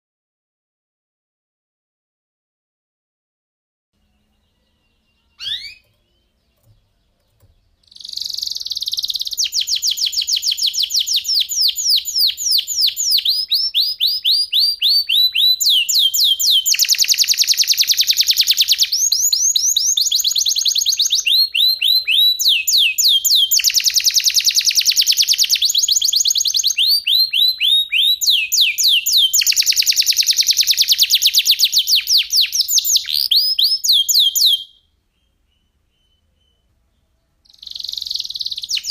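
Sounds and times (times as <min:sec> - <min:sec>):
canary singing: 0:04.0 - 0:38.9
short bird chirp: 0:04.1 - 0:14.4, 0:37.5 - 0:38.9.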